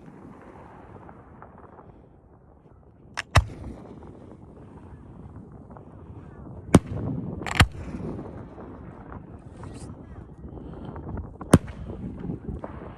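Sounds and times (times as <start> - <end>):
fireworks bangs: 0.0 - 9.4, 11.3 - 12.9.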